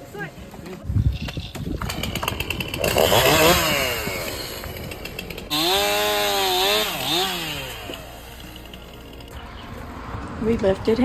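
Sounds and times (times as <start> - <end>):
chainsaw engine revving: 1.1 - 9.3.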